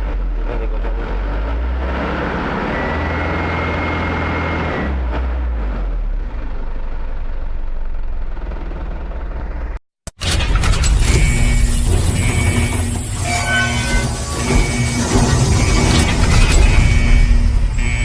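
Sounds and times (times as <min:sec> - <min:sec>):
diesel truck engine idling: 0:06.1 - 0:09.8.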